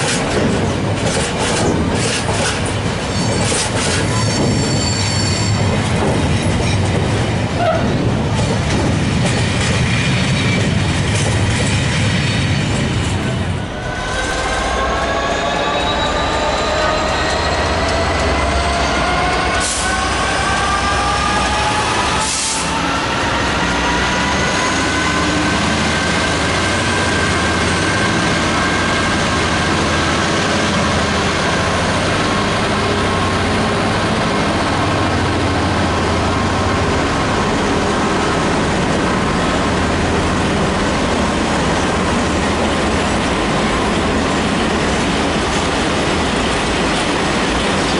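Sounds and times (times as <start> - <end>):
freight train wagons rumbling: 0.0 - 47.9
squealing tones: 13.6 - 20.2.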